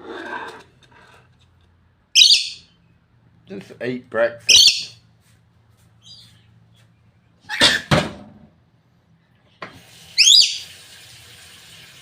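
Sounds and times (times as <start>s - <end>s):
parrot whistled call: 2.2s - 2.6s, 10.2s - 10.7s
parrot screeching: 2.2s - 2.8s, 4.5s - 5.0s, 10.2s - 10.7s.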